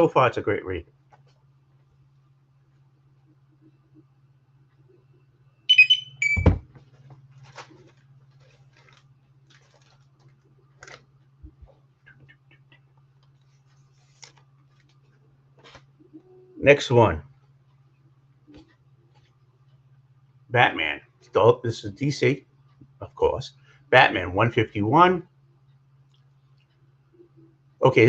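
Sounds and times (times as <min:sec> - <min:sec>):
steady low hum: 0:00.0 - 0:28.0
high electronic beeps: 0:05.7 - 0:06.6
faint clicks and rustling: 0:06.8 - 0:16.0.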